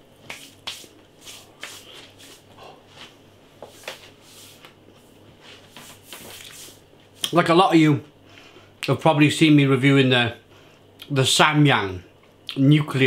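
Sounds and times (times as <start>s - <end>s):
person breathing: 8.2s - 8.8s.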